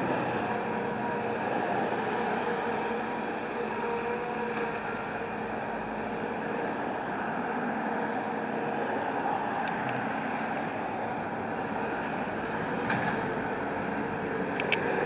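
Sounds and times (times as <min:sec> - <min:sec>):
heavy truck engine running: 0:00.0 - 0:15.0.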